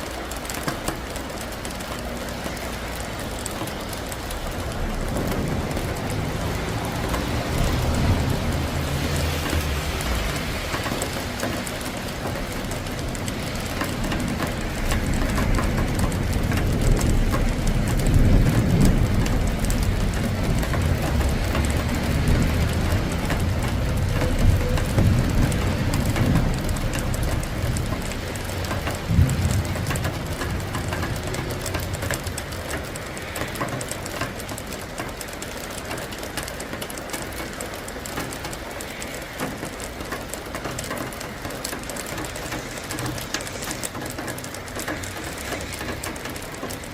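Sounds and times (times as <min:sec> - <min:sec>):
steady rain falling: 0:00.0 - 0:46.9
thunder rumbling: 0:02.6 - 0:35.1
thunder crack: 0:04.4 - 0:10.6, 0:28.8 - 0:32.4.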